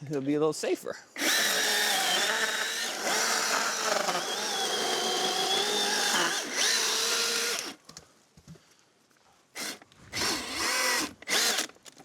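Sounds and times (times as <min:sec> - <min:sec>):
chainsaw cutting wood: 0:01.2 - 0:07.8, 0:09.6 - 0:11.8.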